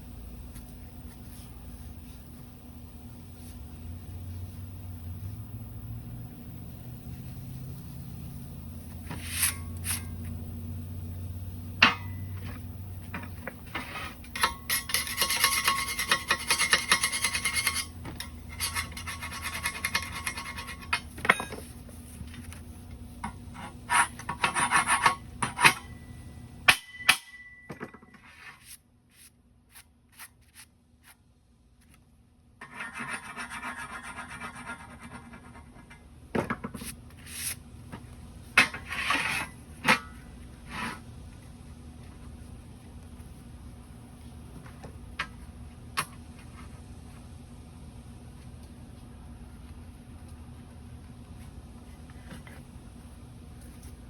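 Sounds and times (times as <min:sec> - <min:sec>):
scraping and rubbing on metal: 0:06.6 - 0:26.0, 0:32.6 - 0:37.6, 0:38.4 - 0:41.2.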